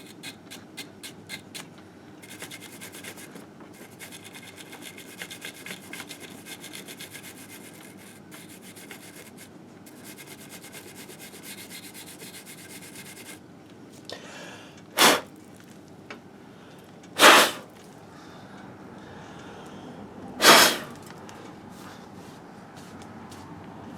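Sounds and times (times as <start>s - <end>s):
hand scrubbing engine case: 15.0s - 15.2s, 17.2s - 17.6s, 20.4s - 21.0s
loud short whooshes: 17.2s - 17.6s, 20.4s - 20.9s.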